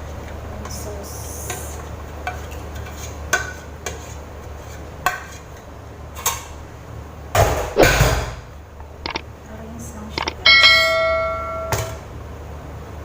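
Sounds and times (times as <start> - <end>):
steady low hum: 6.6 - 13.0
spoon clinking against pot: 10.2 - 11.9.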